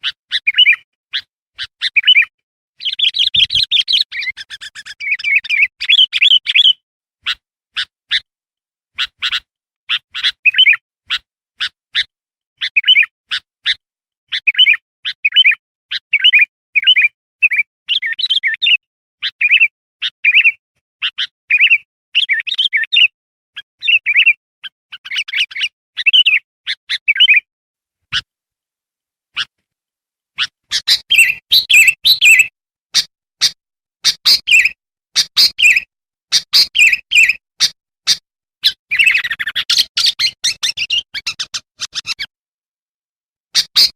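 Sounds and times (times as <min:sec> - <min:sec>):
bird chirping: 0:00.0 - 0:08.3, 0:09.0 - 0:27.4, 0:30.4 - 0:42.3, 0:43.6 - 0:43.9.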